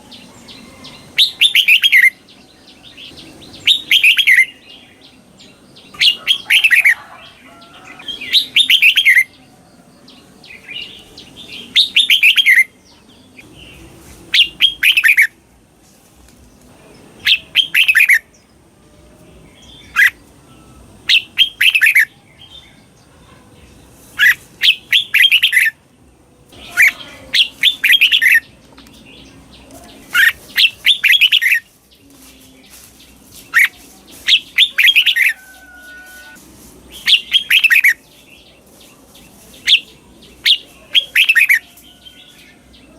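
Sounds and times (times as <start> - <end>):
bird whistling song: 0.0 - 5.1, 7.9 - 9.4, 10.5 - 15.4, 17.2 - 18.3, 19.6 - 22.8, 24.2 - 25.8, 26.6 - 28.5, 30.0 - 38.2.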